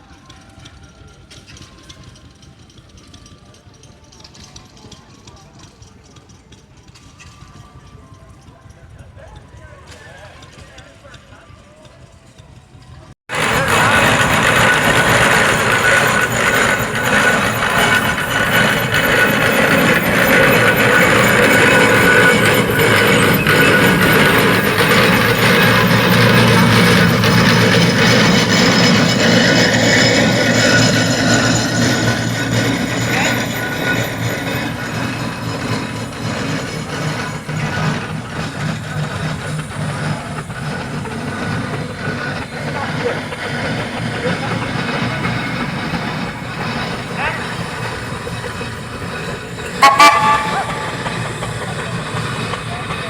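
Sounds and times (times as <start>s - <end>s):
machinery running: 13.3s - 53.0s.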